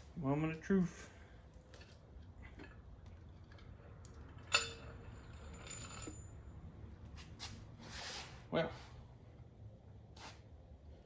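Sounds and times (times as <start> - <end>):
ringing metal clink: 4.4 - 6.5.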